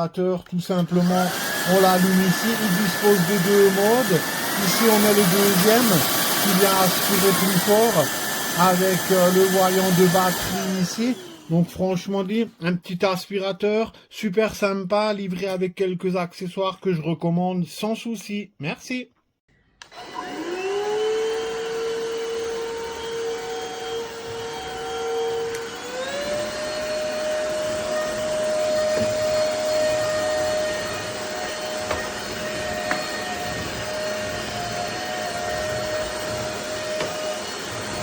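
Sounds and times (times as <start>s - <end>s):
vacuum motor whine: 0.8s - 11.6s, 19.8s - 38.0s.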